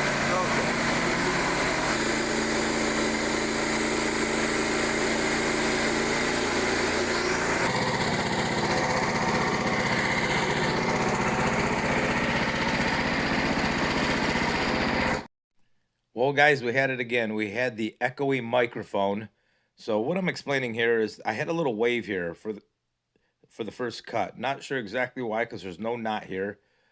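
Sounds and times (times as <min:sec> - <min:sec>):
band sawmill cutting log: 0:00.0 - 0:15.3.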